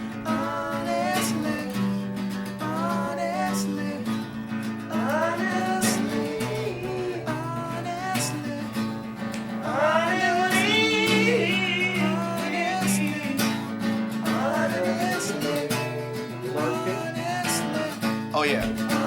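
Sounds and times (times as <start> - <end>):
acoustic guitar strumming: 0.0 - 19.0
person singing wavering notes: 9.7 - 13.3.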